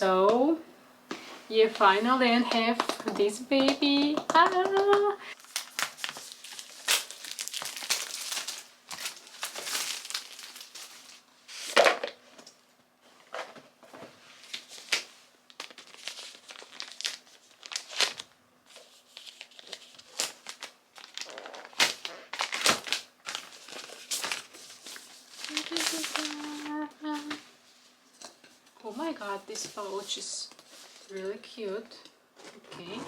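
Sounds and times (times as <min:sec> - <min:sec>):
packaging crinkling and rustling: 0:01.6 - 0:31.6.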